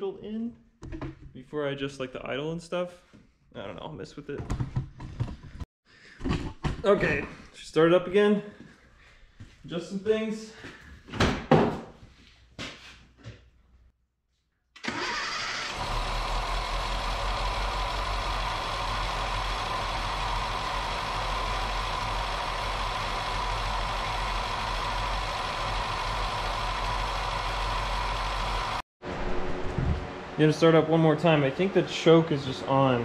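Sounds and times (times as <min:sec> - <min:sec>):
car engine idling: 0:15.6 - 0:28.8.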